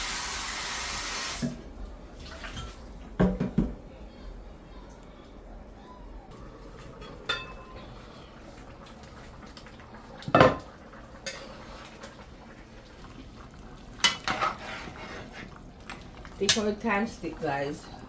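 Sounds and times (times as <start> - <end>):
metal pots clanking: 6.8 - 7.9, 10.2 - 11.5.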